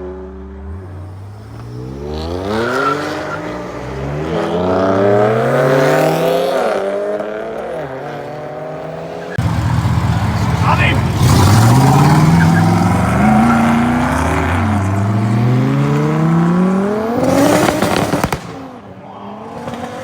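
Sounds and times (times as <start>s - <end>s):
car engine accelerating hard: 0.0s - 20.0s
exhaust pops and crackles: 17.2s - 18.7s.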